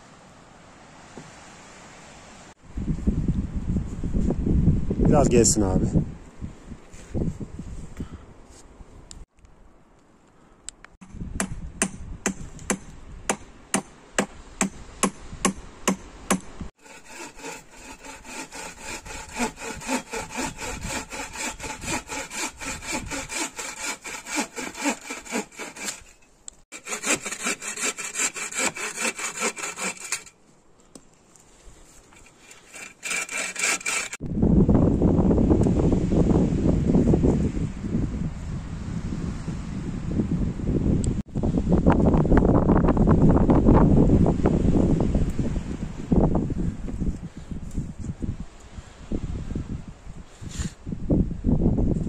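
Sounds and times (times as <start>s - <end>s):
hand saw cutting wood: 14.6s - 30.4s, 32.1s - 34.2s.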